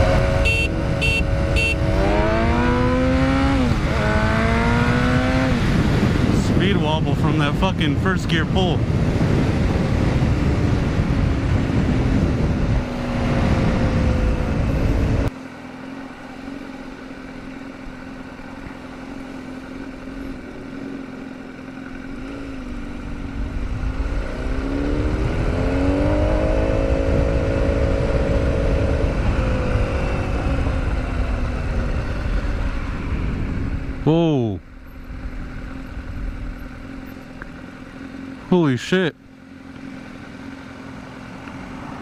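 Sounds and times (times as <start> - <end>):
heavy wind noise: 0.0 - 15.3, 22.4 - 38.4
motorcycle engine accelerating: 0.0 - 42.0.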